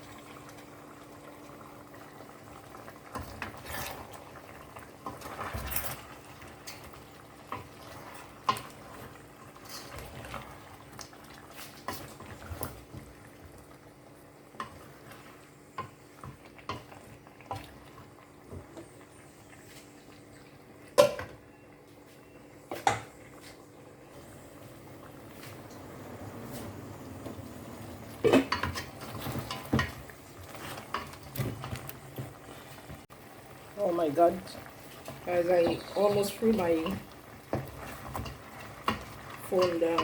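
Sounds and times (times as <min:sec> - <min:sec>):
utensils clinking against pot: 0:05.1 - 0:06.9, 0:28.2 - 0:30.0, 0:38.0 - 0:40.0.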